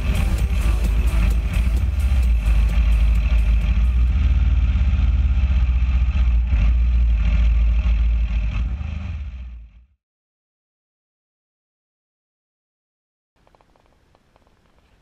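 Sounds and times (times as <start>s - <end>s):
motorcycle engine rumbling: 0.0s - 10.0s, 13.4s - 15.0s.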